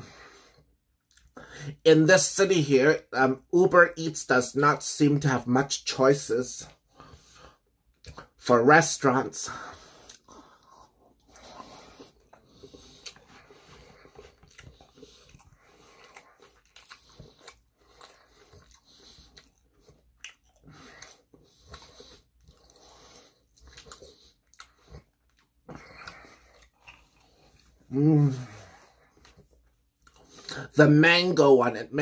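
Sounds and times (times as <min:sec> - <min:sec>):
person chewing: 0:00.5 - 0:01.4, 0:06.7 - 0:30.8.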